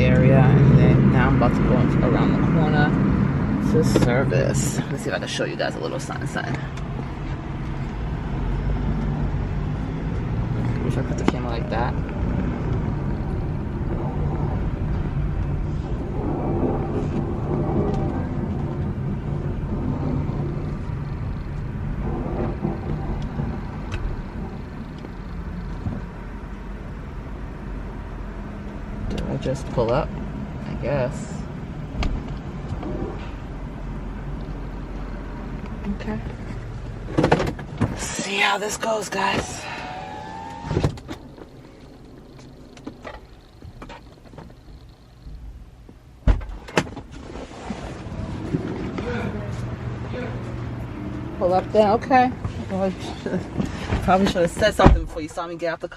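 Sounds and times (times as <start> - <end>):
car engine and road rumble: 0.0 - 55.9
car door thud: 46.2 - 47.1.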